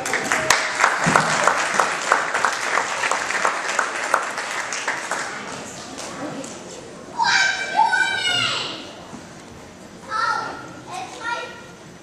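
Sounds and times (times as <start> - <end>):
loud individual claps close by: 0.0 - 5.4
audience applauding: 0.0 - 5.8.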